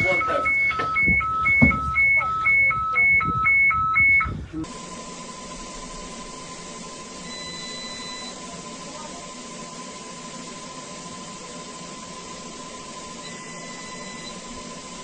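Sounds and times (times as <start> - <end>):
two-tone electronic alarm beeping: 0.0 - 4.4, 7.2 - 8.4, 13.2 - 14.6.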